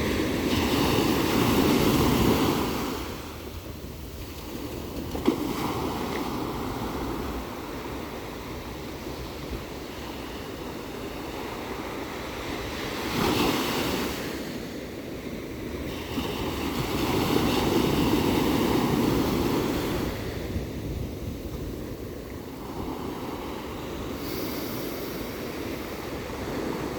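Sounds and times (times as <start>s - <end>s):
ocean waves washing in: 0.0s - 26.9s.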